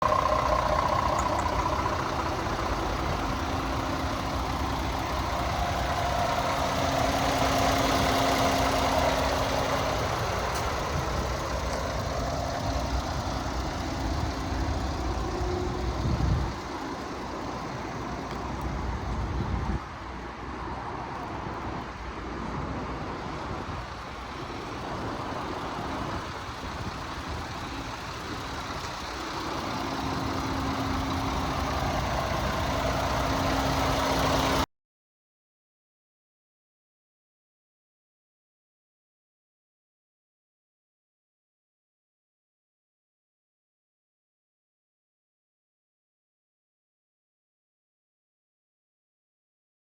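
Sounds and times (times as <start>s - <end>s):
diesel truck engine idling: 0.0s - 34.7s.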